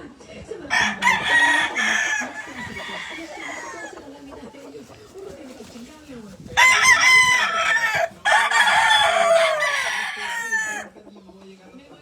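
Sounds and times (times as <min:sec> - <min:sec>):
rooster crowing: 0:00.7 - 0:04.1, 0:06.6 - 0:10.9
hen clucking: 0:00.7 - 0:11.4.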